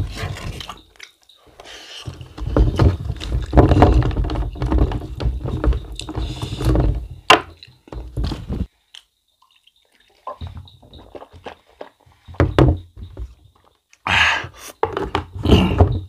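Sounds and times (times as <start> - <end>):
wet chewing and mouth sounds: 8.9 - 12.1.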